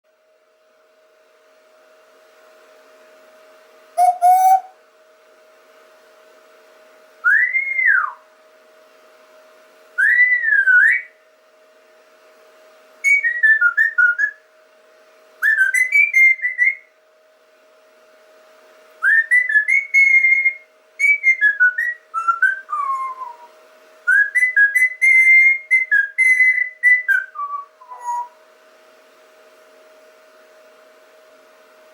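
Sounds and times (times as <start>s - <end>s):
faint steady hum: 0.1s - 31.9s
person whistling melodic phrases: 4.0s - 4.7s.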